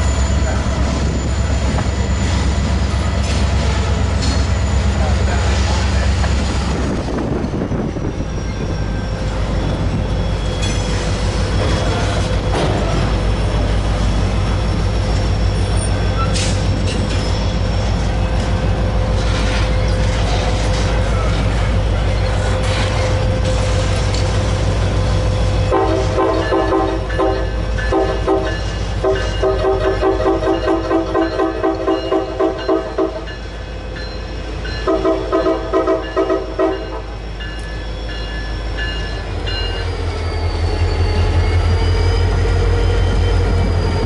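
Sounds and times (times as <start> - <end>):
train rumbling past: 0.0 - 44.0
multi-tone train horn blasts: 25.6 - 33.3, 34.8 - 37.2.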